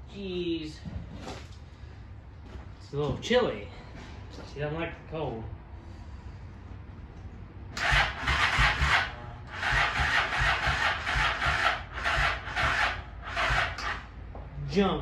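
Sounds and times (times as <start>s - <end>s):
motorcycle electric starter cranking: 7.8s - 14.1s.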